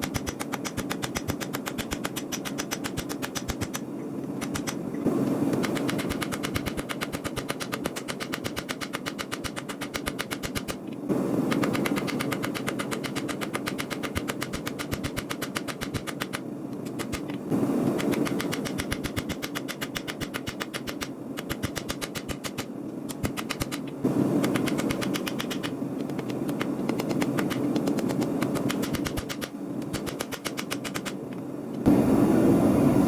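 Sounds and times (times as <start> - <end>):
steady rumble: 10.0 - 19.4, 20.0 - 33.0.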